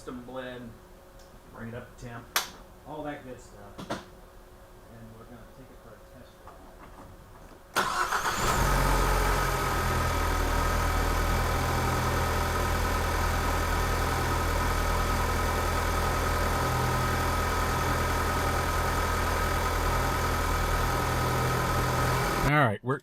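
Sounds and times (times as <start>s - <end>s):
car engine idling: 7.8s - 22.5s.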